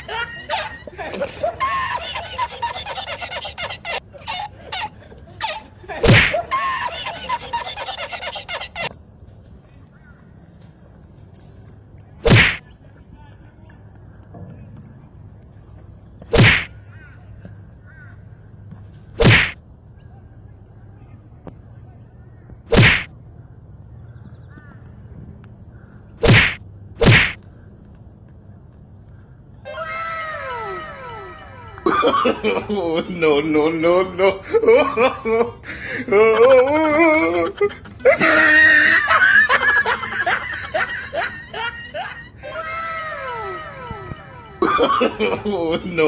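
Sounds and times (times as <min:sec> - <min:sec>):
person laughing in bursts: 0:00.0 - 0:08.9, 0:29.7 - 0:46.0
whip cracks: 0:06.0 - 0:06.4, 0:12.2 - 0:12.6, 0:16.3 - 0:16.7, 0:19.2 - 0:19.6, 0:22.7 - 0:23.1, 0:26.2 - 0:27.4.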